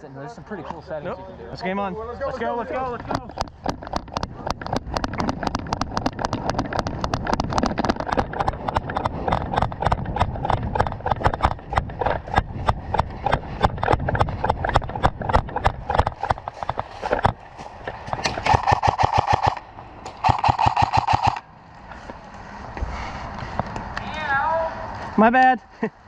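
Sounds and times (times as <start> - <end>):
running footsteps on ground: 2.9 - 19.6.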